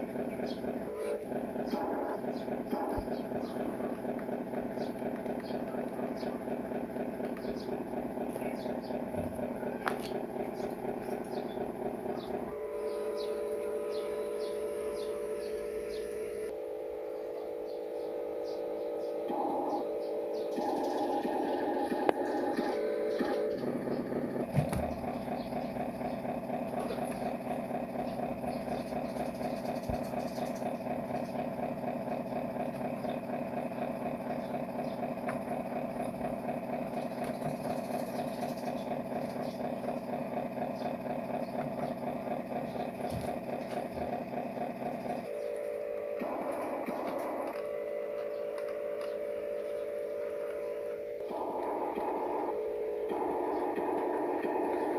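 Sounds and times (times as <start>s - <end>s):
radio-controlled truck droning: 0.0s - 54.9s.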